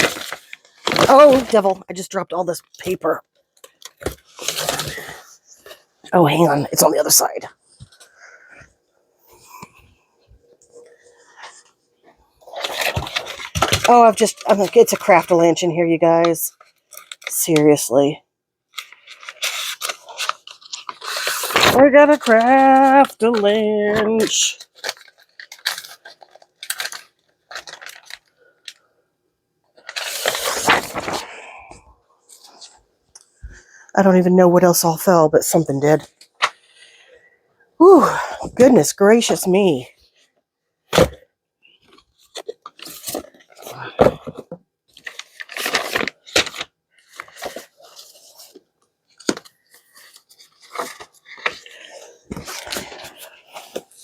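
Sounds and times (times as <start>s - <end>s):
paper rustling and scraping: 0.0s - 1.8s, 12.4s - 15.4s, 18.8s - 28.2s, 29.8s - 31.3s, 41.9s - 54.0s.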